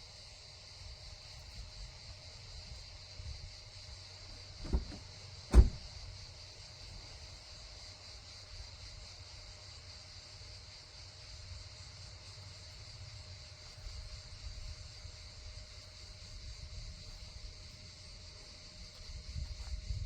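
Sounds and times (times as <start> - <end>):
steady high hiss: 0.0 - 19.2
dull thumps: 4.6 - 5.9.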